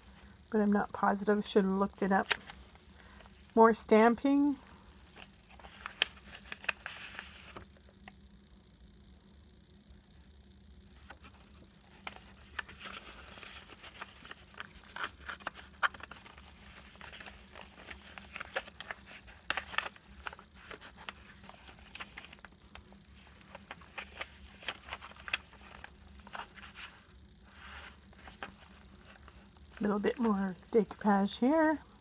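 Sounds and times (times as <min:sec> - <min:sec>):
paper rustling and crinkling: 0:02.2 - 0:03.6, 0:05.0 - 0:07.7, 0:11.0 - 0:31.8.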